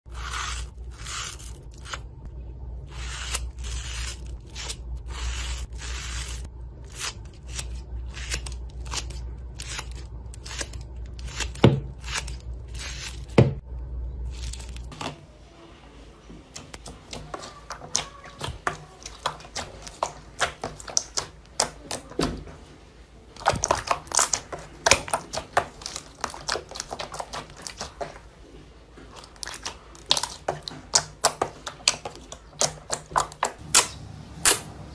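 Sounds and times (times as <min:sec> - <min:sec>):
low hum: 0:00.1 - 0:15.9, 0:33.6 - 0:34.9.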